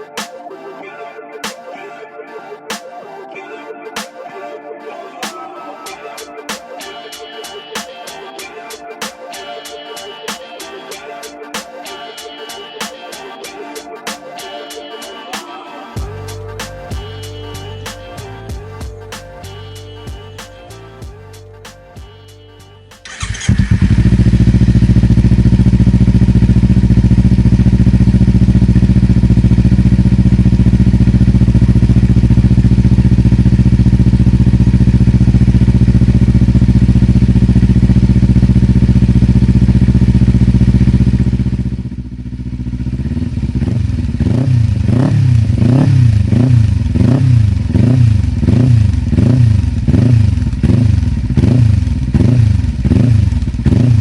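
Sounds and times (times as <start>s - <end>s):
motorcycle engine revving: 23.0s - 54.0s.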